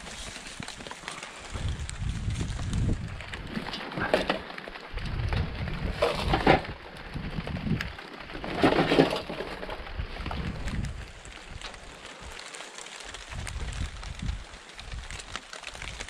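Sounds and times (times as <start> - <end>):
debris crunching and cracking: 0.0 - 16.0
low muffled rumble: 1.5 - 4.1, 4.9 - 11.8.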